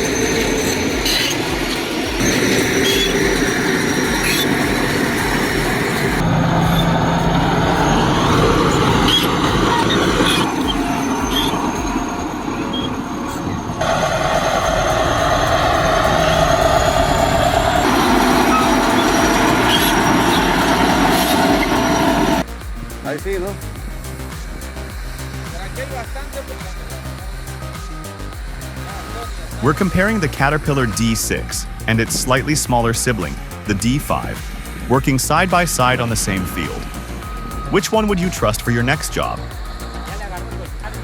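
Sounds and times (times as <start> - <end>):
steel track clatter and squeal: 0.0 - 22.4
diesel engines under load: 0.0 - 22.5, 24.5 - 41.0.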